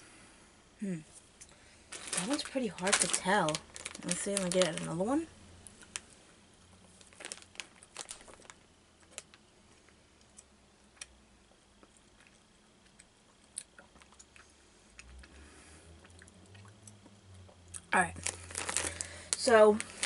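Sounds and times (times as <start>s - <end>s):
faint chewing: 8.1s - 18.6s.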